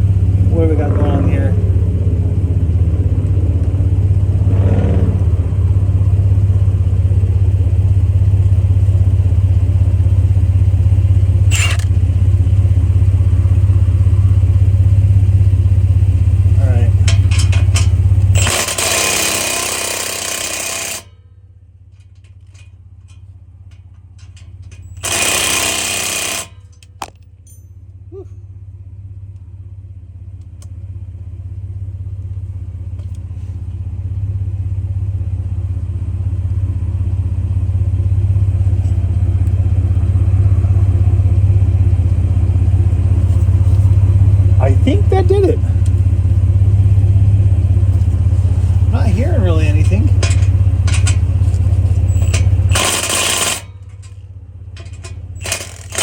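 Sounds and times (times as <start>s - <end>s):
truck engine idling: 0.0s - 56.0s
loud bursts of noise: 0.9s - 6.2s.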